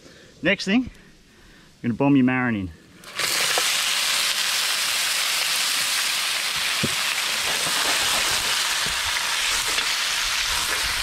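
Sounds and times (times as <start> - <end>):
crayfish sizzling in hot oil: 3.0 - 11.0
oil pops and crackles: 3.0 - 11.0.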